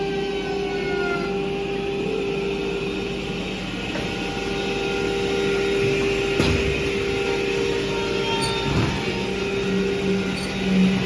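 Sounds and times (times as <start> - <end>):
machine hum with constant tone: 0.0 - 11.0.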